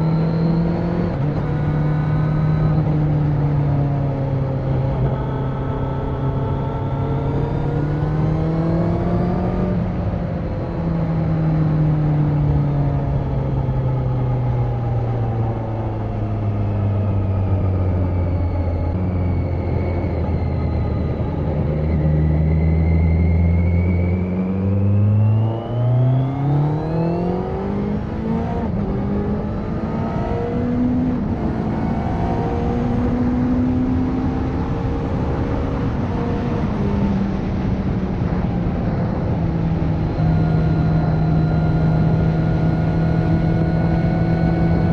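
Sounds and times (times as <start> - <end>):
motorcycle engine revving: 21.6 - 37.7.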